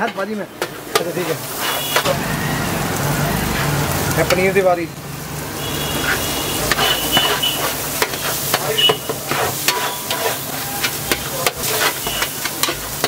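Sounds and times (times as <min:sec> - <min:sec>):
metal spatula scraping: 0:00.0 - 0:02.2, 0:06.0 - 0:13.0
fat sizzling in a pan: 0:00.0 - 0:13.0
spatula clicking on pan: 0:08.0 - 0:13.0.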